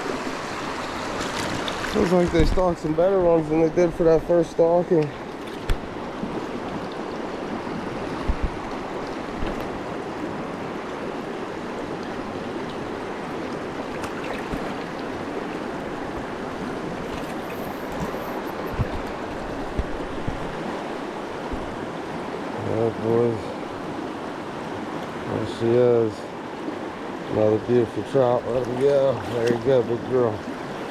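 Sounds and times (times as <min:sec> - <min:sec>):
creek water rushing: 0:00.0 - 0:30.9.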